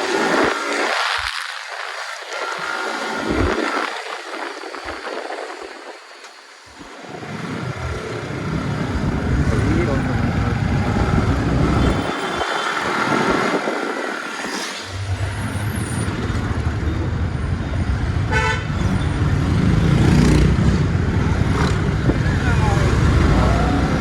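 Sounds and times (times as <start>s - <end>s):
wind rumbling on microphone: 0.0s - 24.0s
vehicle horn honking: 18.3s - 18.9s.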